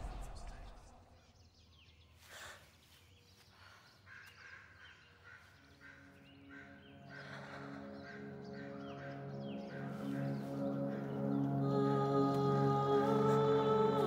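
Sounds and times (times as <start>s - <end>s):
soft sustained music tones: 2.8s - 14.0s.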